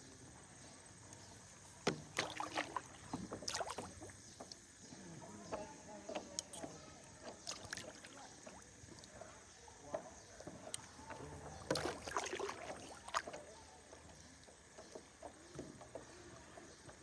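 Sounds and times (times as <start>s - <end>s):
water splashing: 1.9s - 4.2s, 7.2s - 8.8s, 10.7s - 13.5s.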